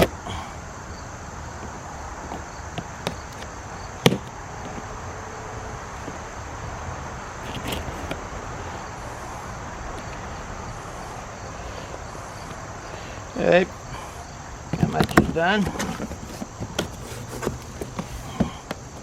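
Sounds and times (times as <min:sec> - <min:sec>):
cardboard scraping and rustling: 0:07.4 - 0:08.3, 0:14.7 - 0:19.0.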